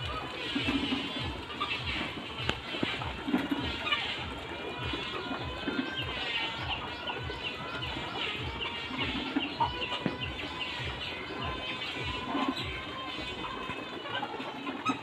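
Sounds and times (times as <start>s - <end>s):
hens clucking and calling: 0.0s - 15.0s.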